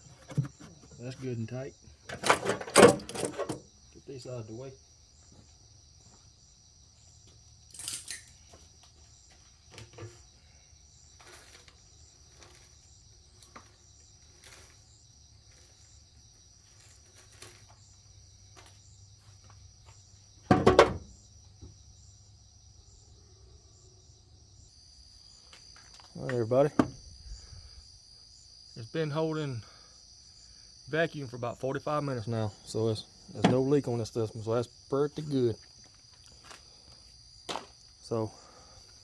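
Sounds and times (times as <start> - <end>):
crickets chirping: 0.0 - 39.0
short knocks: 20.5 - 21.2.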